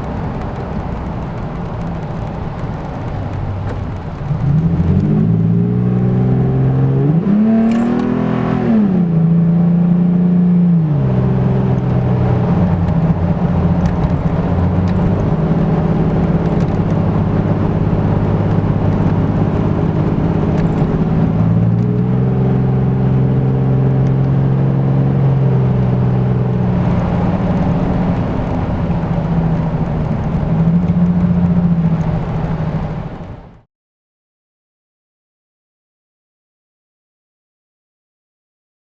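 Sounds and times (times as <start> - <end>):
pickup truck engine and exhaust: 0.0 - 33.6.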